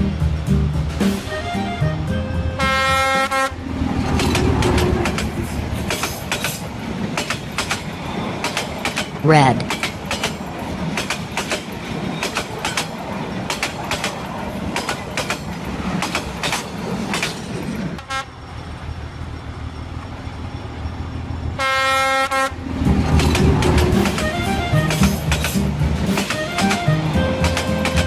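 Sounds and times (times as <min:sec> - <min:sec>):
music: 0:00.0 - 0:03.5, 0:22.9 - 0:28.0
train rolling rumble: 0:00.0 - 0:28.0
train horn blast: 0:01.3 - 0:03.7, 0:18.0 - 0:18.3, 0:21.6 - 0:22.7, 0:24.1 - 0:25.2
train wheels clickety-clack: 0:02.8 - 0:21.4, 0:22.8 - 0:28.0.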